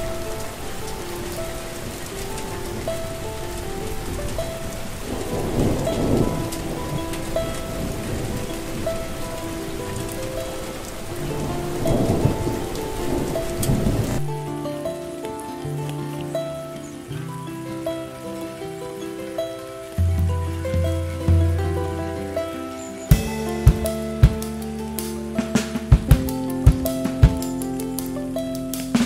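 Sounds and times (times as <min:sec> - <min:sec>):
slow soft melody: 0:00.0 - 0:29.0
steady rain hiss: 0:00.0 - 0:29.0
thunder rolling: 0:04.0 - 0:14.3, 0:23.1 - 0:27.6.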